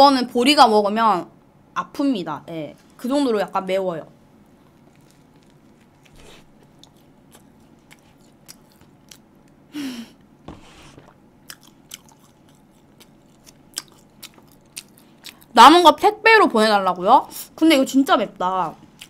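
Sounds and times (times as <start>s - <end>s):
chewing crunchy sandwich: 4.5s - 9.7s, 10.9s - 15.6s.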